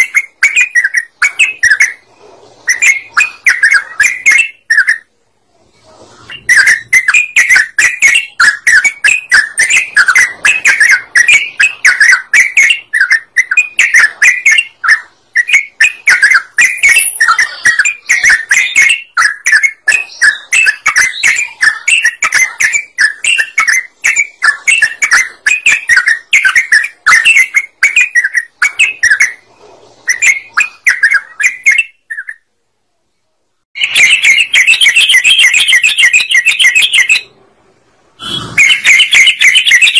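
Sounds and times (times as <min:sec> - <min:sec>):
bird singing chattering notes: 0:06.4 - 0:29.4, 0:38.2 - 0:39.9.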